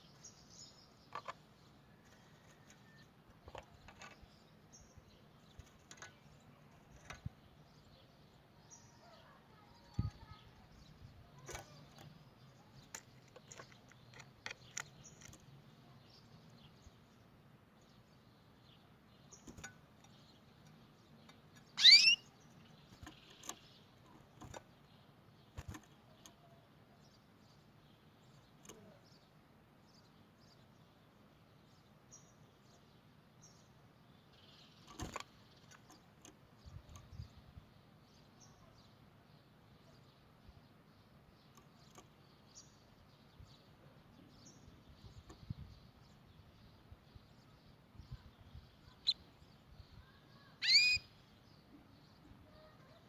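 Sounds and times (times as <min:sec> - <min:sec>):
canary chirping: 0:19.4 - 0:24.6, 0:48.7 - 0:49.4, 0:50.1 - 0:51.2
rising whistled bird call: 0:21.8 - 0:22.3, 0:50.6 - 0:51.1.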